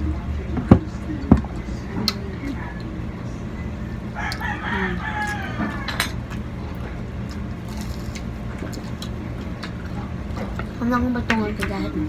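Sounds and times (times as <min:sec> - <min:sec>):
faint voices: 0:00.0 - 0:07.6
steady low hum: 0:00.0 - 0:12.0
dishes and cutlery clinking: 0:05.2 - 0:06.4.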